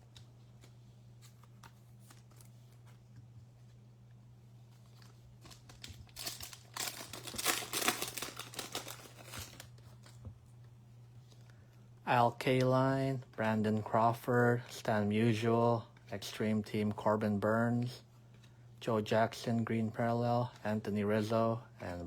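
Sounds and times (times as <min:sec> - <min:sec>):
low electrical hum: 0:00.0 - 0:22.0
wrapper tearing and crinkling: 0:05.0 - 0:10.1.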